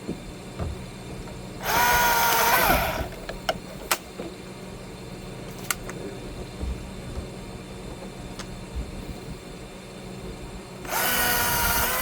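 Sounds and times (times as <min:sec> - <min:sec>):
chainsaw revving: 0:01.6 - 0:03.1, 0:10.9 - 0:12.0.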